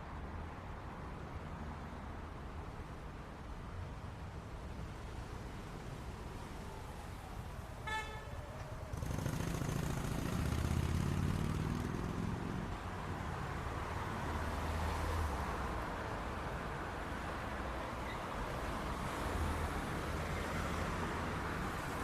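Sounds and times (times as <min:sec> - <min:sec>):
car horn toot: 0:07.8 - 0:08.3
vehicle engine rumbling past: 0:08.8 - 0:12.6.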